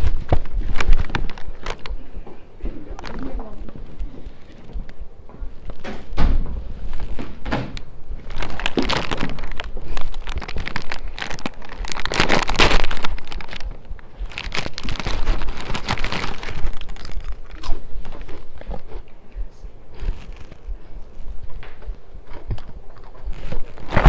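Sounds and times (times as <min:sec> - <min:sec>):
snack packet crinkling: 0:00.0 - 0:02.0, 0:03.0 - 0:05.0, 0:08.2 - 0:19.1, 0:19.9 - 0:24.0.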